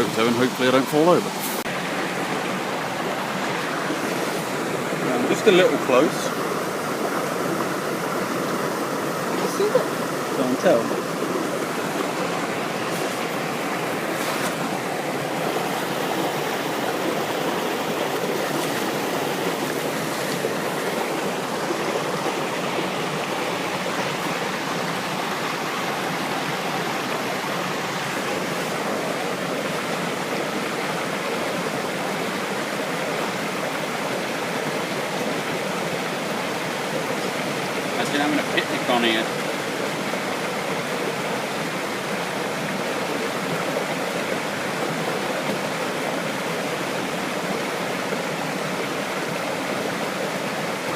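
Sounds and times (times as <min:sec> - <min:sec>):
waterfall roaring: 0:00.0 - 0:50.9.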